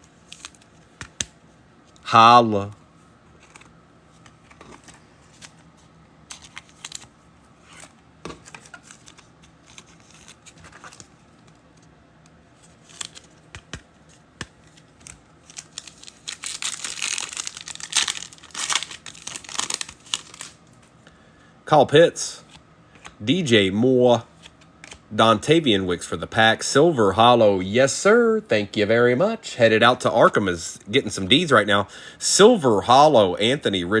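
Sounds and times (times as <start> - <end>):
cards clicking and handled: 0.3 - 1.4, 3.4 - 5.6, 12.2 - 20.5
wrapper torn open and crinkled: 15.4 - 20.6.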